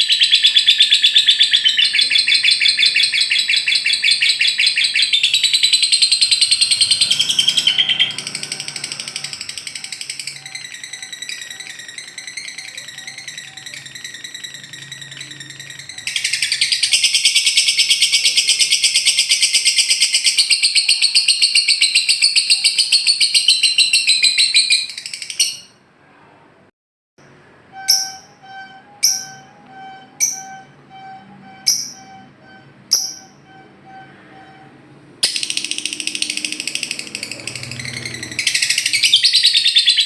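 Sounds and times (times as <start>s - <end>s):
steady held tones: 0.0s - 19.7s, 27.2s - 39.3s
lovebird chattering and trilling: 0.0s - 25.8s, 27.8s - 29.6s, 31.6s - 34.0s, 35.2s - 40.0s
sharp high chirp: 0.0s - 25.8s, 27.2s - 40.0s.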